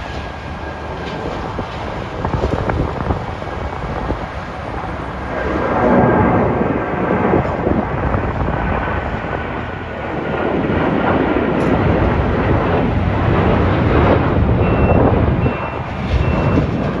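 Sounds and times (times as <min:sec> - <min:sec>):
gusty rushing wind noise: 0:00.0 - 0:17.0
heavy low rumble: 0:00.0 - 0:17.0
reversing alarm beeps: 0:14.6 - 0:17.0.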